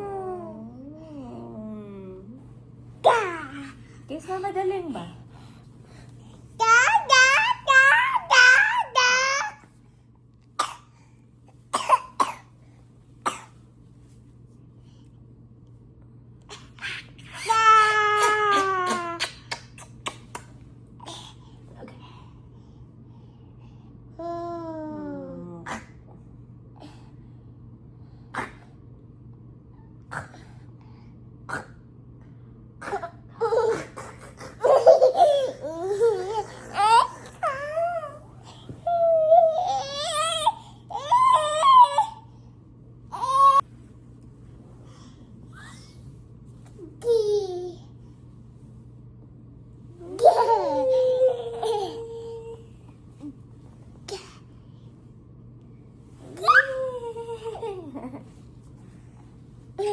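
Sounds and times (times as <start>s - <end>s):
toddler laughing: 33.4s - 37.9s, 50.2s - 52.5s.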